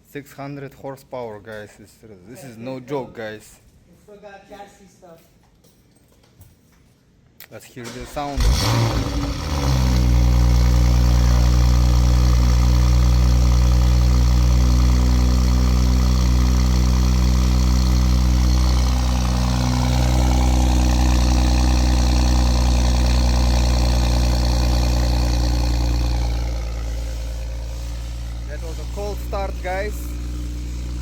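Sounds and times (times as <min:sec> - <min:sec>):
car engine idling: 0:08.2 - 0:31.0.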